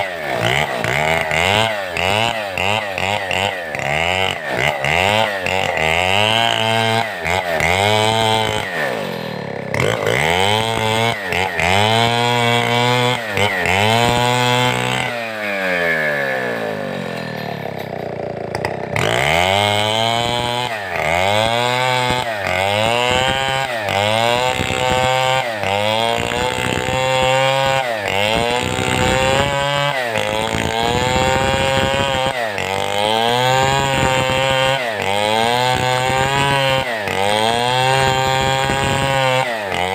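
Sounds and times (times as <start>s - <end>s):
chainsaw cutting timber: 0.0s - 39.9s.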